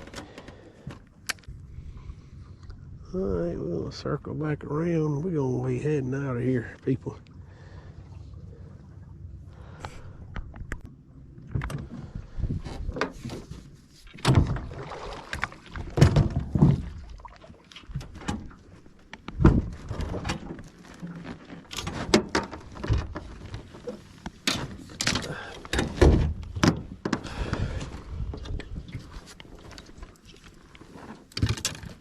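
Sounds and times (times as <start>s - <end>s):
low rumbling haze: 0.4s - 13.3s.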